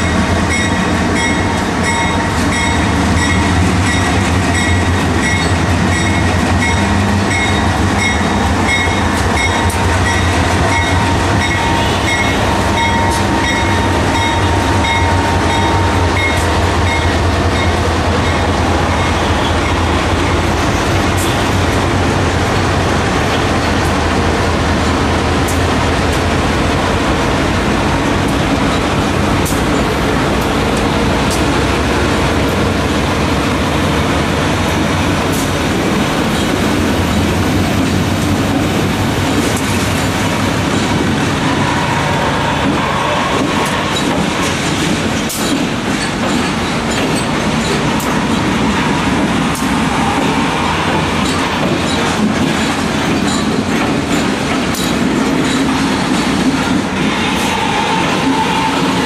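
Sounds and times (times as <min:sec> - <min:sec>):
diesel locomotives rumbling: 0:00.0 - 0:59.0
wheels clicking over rail joints: 0:51.2 - 0:57.0.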